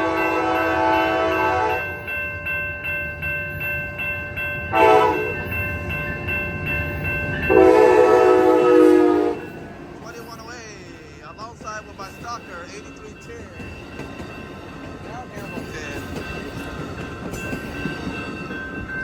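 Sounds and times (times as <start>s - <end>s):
locomotive horn blasts: 0.0s - 1.8s, 4.7s - 5.4s, 7.5s - 9.6s
crossing bell ringing: 0.0s - 19.0s
rumble of passing train: 0.0s - 19.0s.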